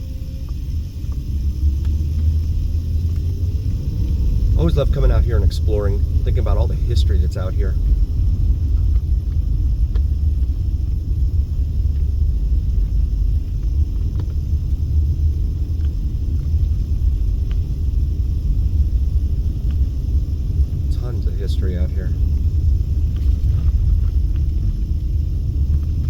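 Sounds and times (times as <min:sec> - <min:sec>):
road and engine rumble in car: 0:00.0 - 0:26.0.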